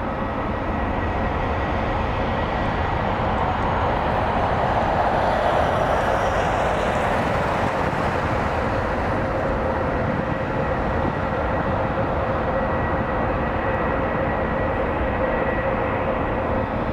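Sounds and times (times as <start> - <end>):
jet engines at takeoff thrust: 0.0 - 16.9.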